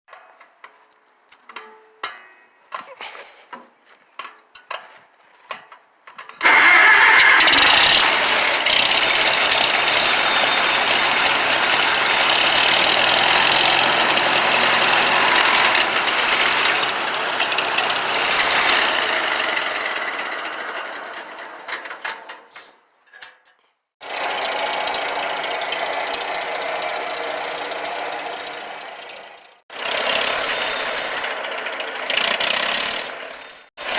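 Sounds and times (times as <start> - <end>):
tractor engine running: 6.4 - 21.5.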